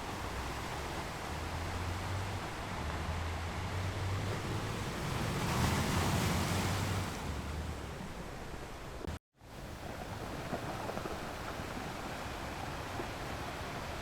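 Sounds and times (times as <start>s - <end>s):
ocean waves breaking on rocks: 4.2s - 8.2s, 9.5s - 14.0s.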